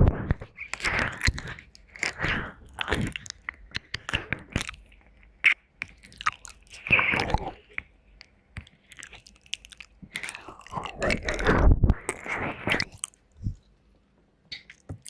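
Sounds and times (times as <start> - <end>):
wet lip smacks and licking: 0.6 - 11.5.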